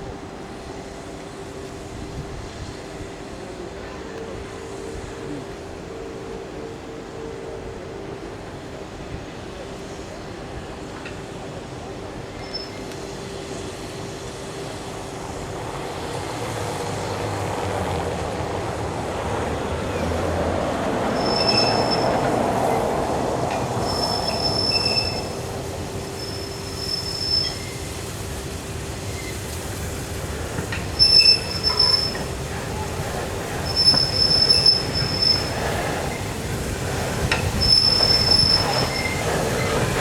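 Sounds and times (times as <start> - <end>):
train rumbling on rails: 0.0 - 40.0
wheel squeal: 12.4 - 13.0, 19.9 - 28.0, 29.1 - 29.6, 30.6 - 36.3, 36.9 - 40.0.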